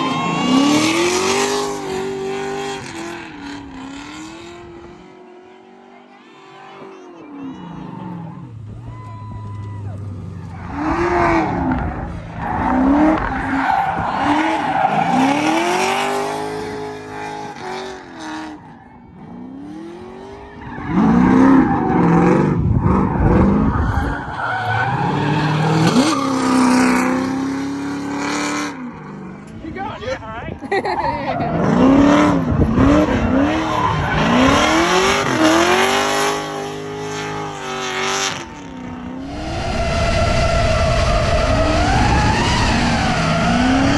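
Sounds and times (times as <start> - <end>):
engine revving hard: 10.6 - 18.6, 31.5 - 43.9.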